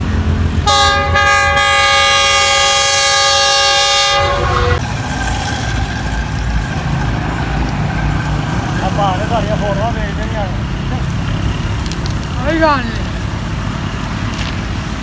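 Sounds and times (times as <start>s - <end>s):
train rumble: 0.0s - 15.0s
locomotive horn blast: 0.1s - 4.8s.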